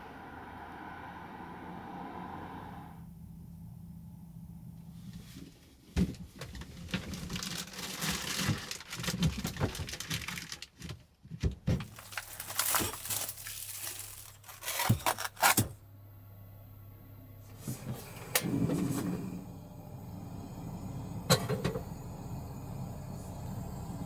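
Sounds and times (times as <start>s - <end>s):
packaging crinkling and tearing: 6.4s - 11.0s, 11.8s - 15.7s.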